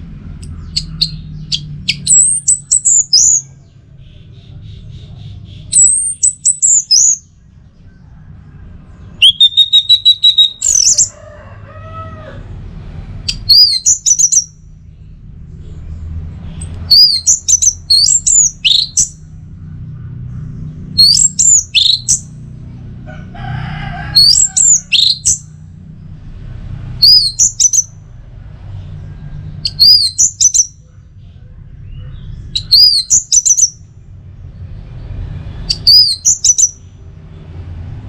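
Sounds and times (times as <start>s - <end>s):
bird trill: 0.4s - 8.1s, 9.0s - 11.3s, 13.2s - 15.1s, 16.4s - 22.6s, 24.1s - 25.6s, 27.0s - 28.0s, 29.6s - 33.9s, 35.5s - 37.0s
thrush singing whistled phrases: 0.7s - 3.5s, 5.5s - 7.3s, 9.2s - 11.1s, 13.3s - 14.6s, 16.9s - 19.2s, 21.0s - 22.3s, 27.0s - 27.9s, 29.6s - 30.8s, 32.6s - 33.8s, 35.7s - 36.9s.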